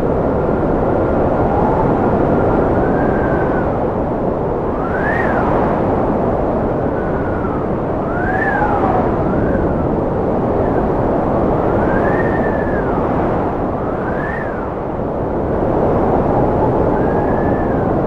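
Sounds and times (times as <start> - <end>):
wind rushing: 0.0 - 18.0
wind whistling: 0.0 - 18.0.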